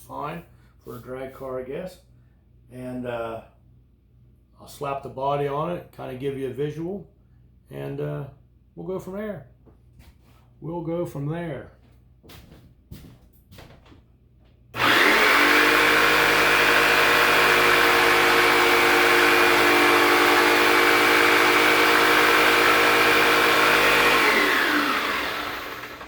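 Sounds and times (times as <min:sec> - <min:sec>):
electric saw cutting wood: 0:14.8 - 0:26.0.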